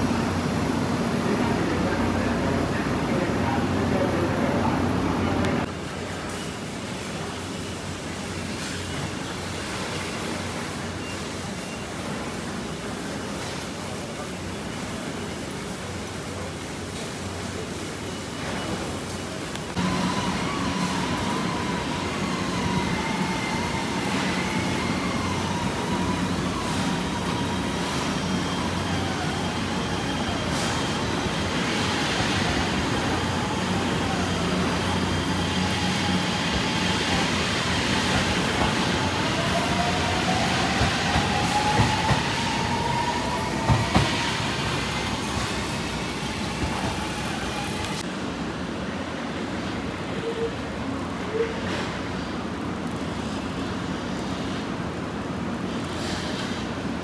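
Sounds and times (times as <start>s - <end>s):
train wheels rumbling on rail: 0.0s - 57.0s
electric train whine: 18.0s - 48.4s.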